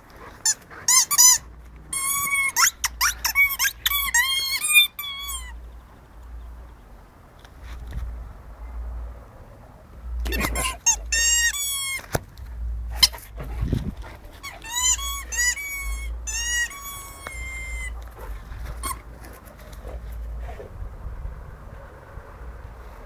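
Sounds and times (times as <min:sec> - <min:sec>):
dog chewing squeaky toy: 0:00.3 - 0:05.6, 0:10.2 - 0:12.2, 0:12.8 - 0:19.5
rapid high-pitched squeaks: 0:00.4 - 0:05.6, 0:10.3 - 0:12.1, 0:14.4 - 0:18.0, 0:18.8 - 0:19.1.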